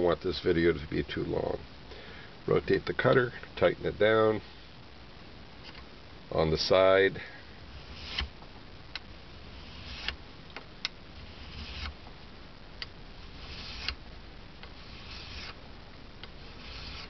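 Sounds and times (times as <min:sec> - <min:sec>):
file rasping on metal blade: 0:13.2 - 0:13.9, 0:14.8 - 0:15.6, 0:16.4 - 0:17.0.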